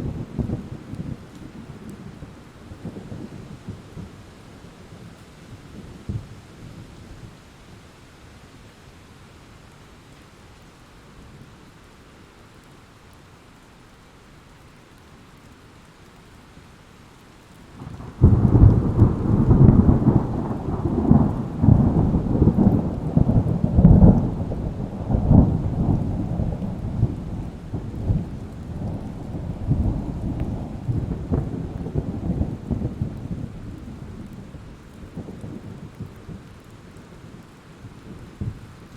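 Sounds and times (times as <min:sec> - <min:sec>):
steady rain hiss: 0:00.0 - 0:38.9
thunderclap rumbling: 0:17.8 - 0:36.5.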